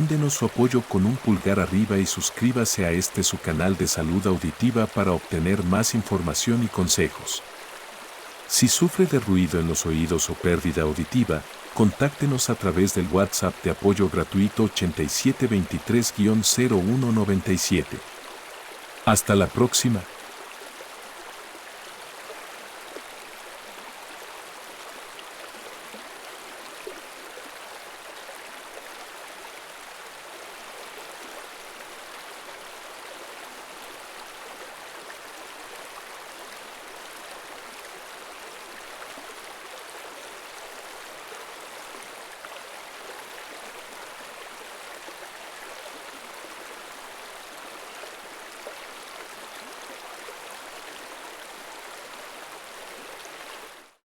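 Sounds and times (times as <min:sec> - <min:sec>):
stream rushing over rocks: 0:00.0 - 0:53.8.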